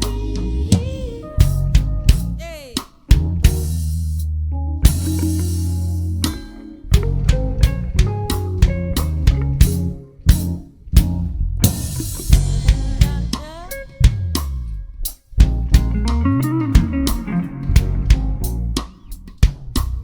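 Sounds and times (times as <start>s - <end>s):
drum kit kick and snare hits: 0.0s - 4.1s, 4.9s - 5.6s, 6.2s - 14.6s, 15.4s - 20.0s
live band playing: 4.8s - 10.6s, 11.6s - 14.6s, 15.7s - 18.4s.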